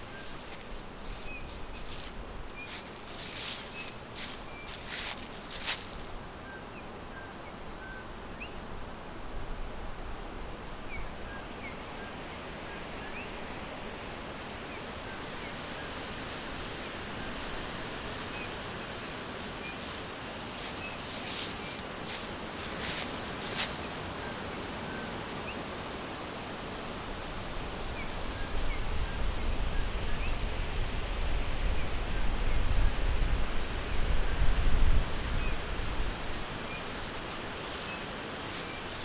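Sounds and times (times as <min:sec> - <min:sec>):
crackling rustles: 0:00.0 - 0:06.4, 0:13.9 - 0:24.2, 0:33.6 - 0:39.0
background hiss: 0:00.0 - 0:06.5, 0:10.6 - 0:24.7, 0:33.3 - 0:39.0.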